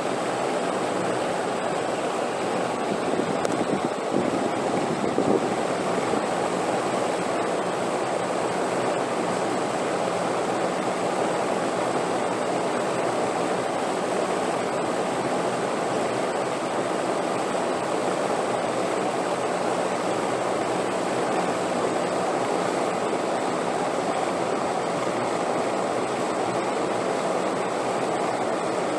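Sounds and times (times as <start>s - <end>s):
steady wind: 0.0s - 28.9s.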